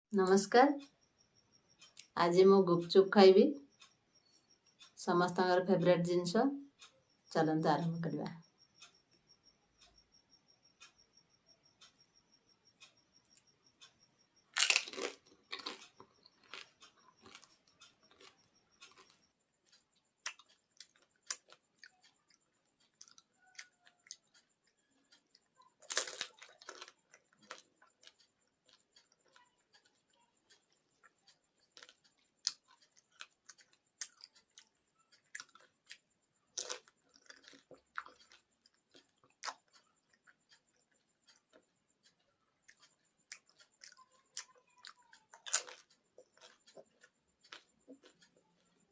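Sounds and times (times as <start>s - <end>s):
soft wet chewing: 12.8s - 48.9s
crisp shells crunching: 14.6s - 16.6s.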